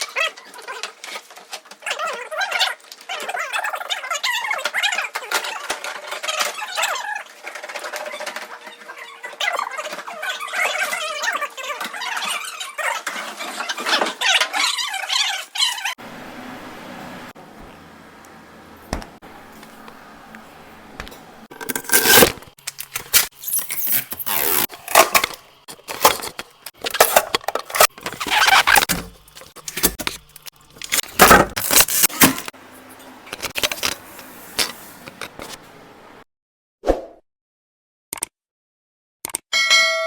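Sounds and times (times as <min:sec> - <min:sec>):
packaging rustling and scraping: 0:21.4 - 0:32.6, 0:33.2 - 0:35.7.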